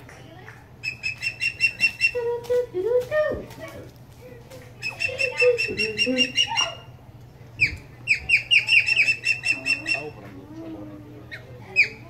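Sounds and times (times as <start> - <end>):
bird of prey calling: 0.8 - 2.3, 4.8 - 6.9, 7.6 - 10.2.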